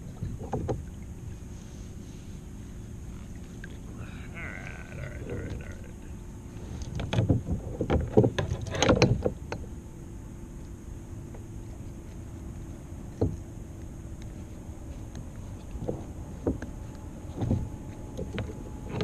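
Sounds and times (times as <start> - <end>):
knocks and rattles on a kayak: 0.0 - 1.4, 6.8 - 9.8, 13.0 - 13.5, 15.2 - 19.0.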